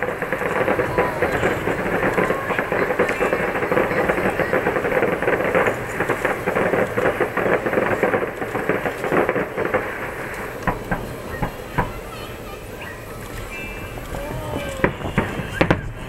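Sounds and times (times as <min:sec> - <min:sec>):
fireworks bangs: 0:00.0 - 0:16.0
fireworks crackling and popping: 0:00.0 - 0:16.0.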